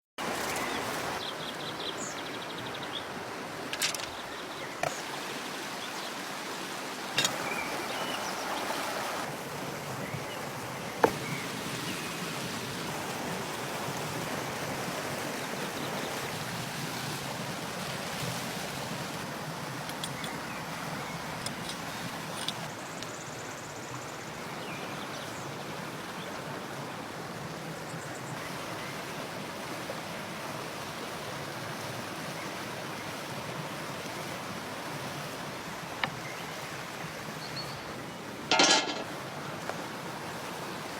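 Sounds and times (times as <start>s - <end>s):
stream water flowing: 0.2s - 40.9s.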